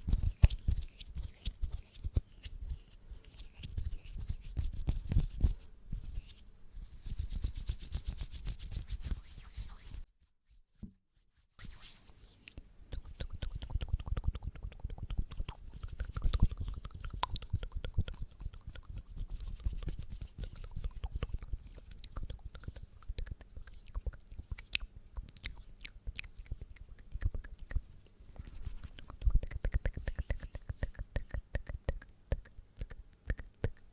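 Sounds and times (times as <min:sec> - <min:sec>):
wet mouth clicks and smacks: 0:12.5 - 0:33.9.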